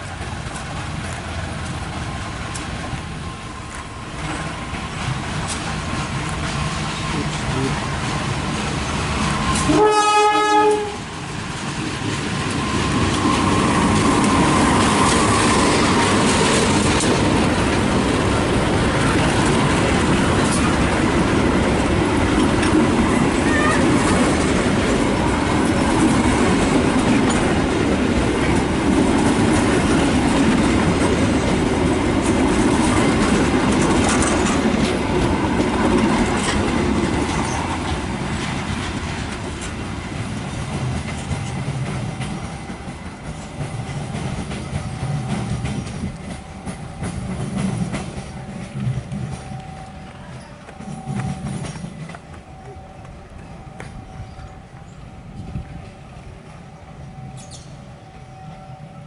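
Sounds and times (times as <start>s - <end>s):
train rolling past: 0.0s - 59.0s
train horn: 9.4s - 11.1s, 23.2s - 24.3s.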